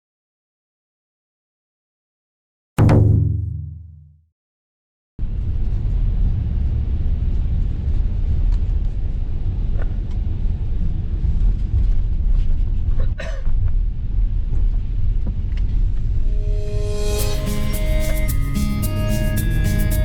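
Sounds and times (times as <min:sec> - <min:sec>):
brief knock: 0:02.8 - 0:04.1
steady low rumble: 0:16.0 - 0:18.6.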